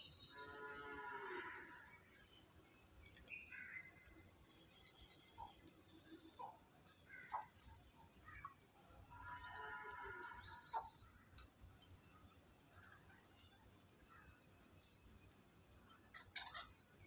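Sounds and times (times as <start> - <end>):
bird chirps and calls: 16.0 - 17.0.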